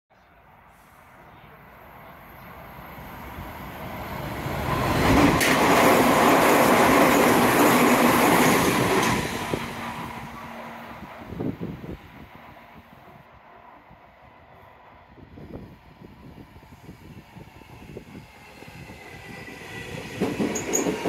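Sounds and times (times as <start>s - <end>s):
train wheels rushing on rail: 2.0s - 12.5s, 15.3s - 21.0s.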